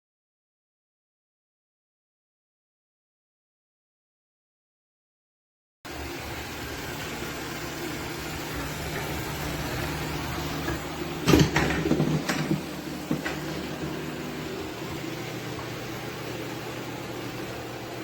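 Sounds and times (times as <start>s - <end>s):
machine hum: 5.9s - 18.0s.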